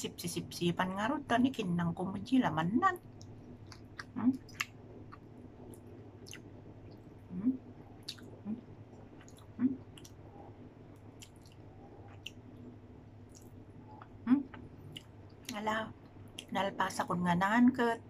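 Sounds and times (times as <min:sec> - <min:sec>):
person chewing food: 0:03.0 - 0:07.2, 0:07.9 - 0:12.6, 0:13.2 - 0:16.5.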